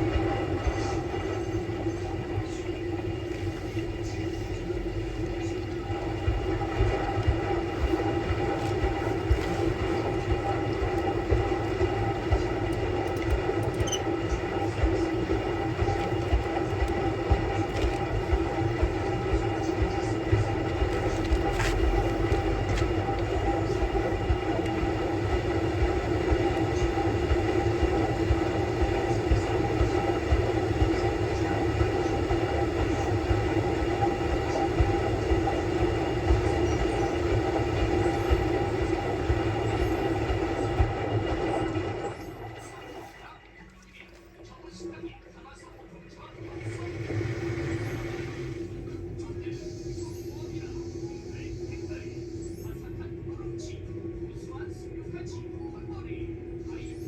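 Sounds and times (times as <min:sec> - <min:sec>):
washing machine running: 0:00.0 - 0:57.0.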